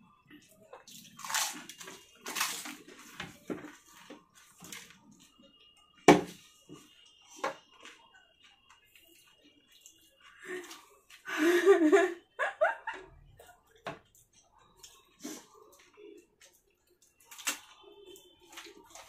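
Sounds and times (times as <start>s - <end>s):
crunching and slurping: 0.8s - 5.2s, 14.8s - 19.0s.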